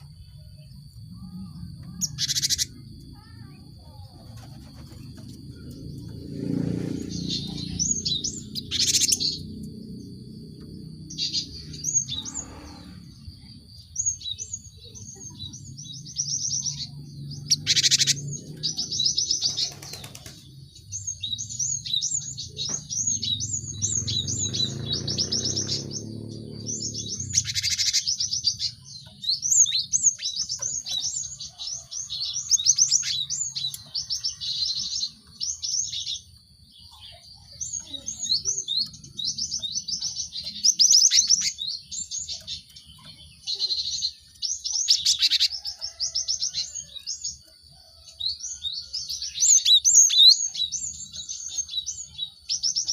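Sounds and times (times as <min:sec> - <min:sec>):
birds chirping: 0:00.0 - 0:52.9
rasping bird calls: 0:11.1 - 0:13.2.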